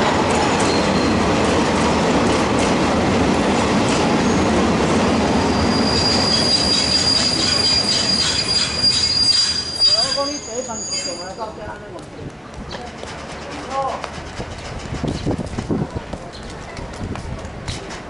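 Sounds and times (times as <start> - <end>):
steel wheels rumbling on rail: 0.0 - 18.0
high-pitched wheel squeal: 5.4 - 11.6
wheels clattering over rail joints: 12.7 - 16.8.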